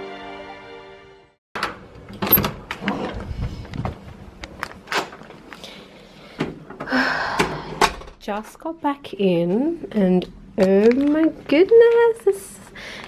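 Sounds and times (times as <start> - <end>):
door opening and shutting: 1.6 - 3.2.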